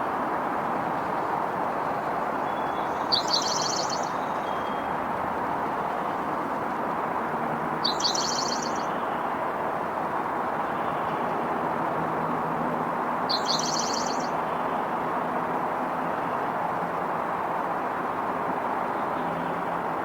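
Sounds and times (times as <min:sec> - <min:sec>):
distant road traffic: 0:00.0 - 0:20.0
small bird chattering: 0:07.8 - 0:08.9, 0:13.3 - 0:14.3.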